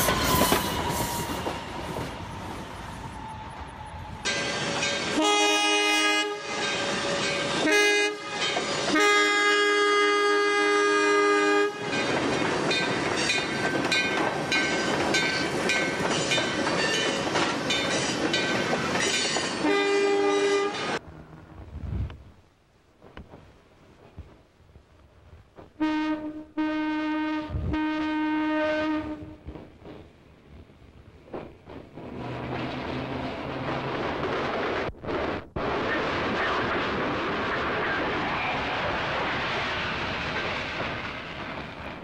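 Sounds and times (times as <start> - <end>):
rail cars rumbling and clattering: 0.0 - 22.2, 28.7 - 42.0
train horn blasts: 4.2 - 12.0, 19.6 - 21.0, 25.8 - 29.4.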